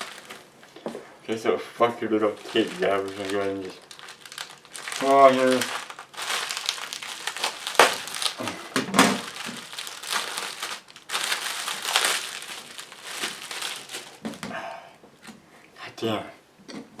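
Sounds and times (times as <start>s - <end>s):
plastic packaging crinkling and tearing: 0.0s - 0.5s, 2.0s - 14.5s.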